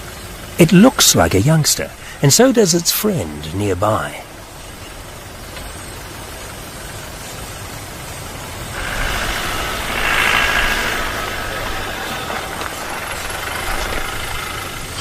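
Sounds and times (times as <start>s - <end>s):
vehicle engine running: 8.4s - 15.0s.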